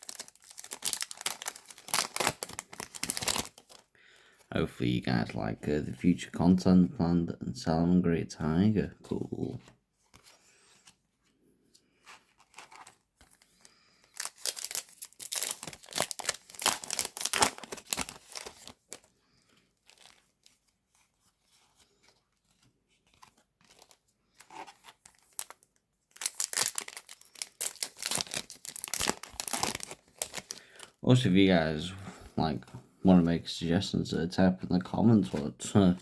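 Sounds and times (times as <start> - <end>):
foil packs tearing and crinkling: 0.0 - 3.9, 12.5 - 19.1, 23.6 - 31.0
wrappers and cards rustling: 0.0 - 4.5, 9.1 - 36.0.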